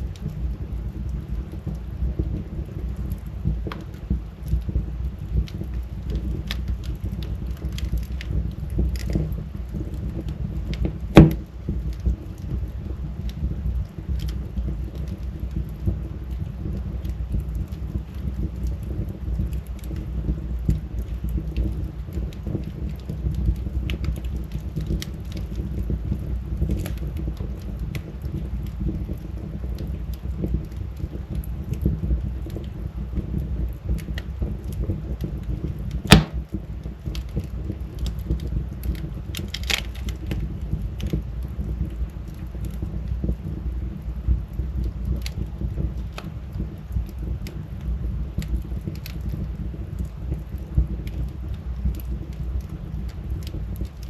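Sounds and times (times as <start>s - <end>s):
wood fire crackling: 0.0s - 54.0s
loud sharp pop: 11.2s - 11.4s, 36.1s - 36.4s.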